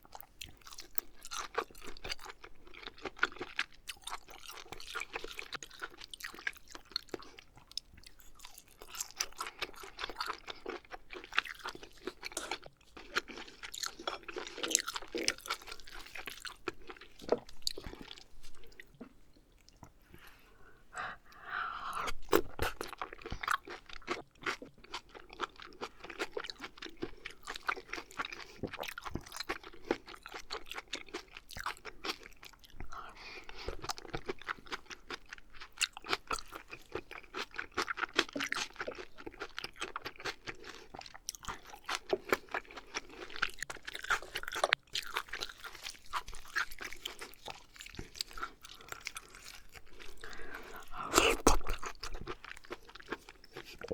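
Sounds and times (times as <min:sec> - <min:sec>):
wet chewing and smacking: 0:00.0 - 0:20.4, 0:21.0 - 0:53.9.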